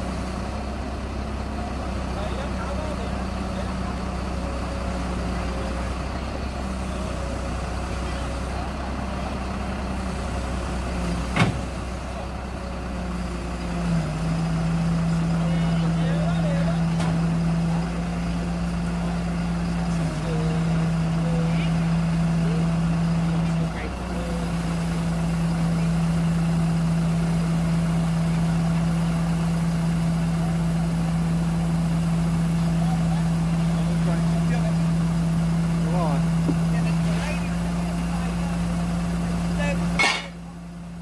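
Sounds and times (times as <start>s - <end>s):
truck engine running: 0.0s - 41.0s
sharp metal clank: 40.0s - 40.4s.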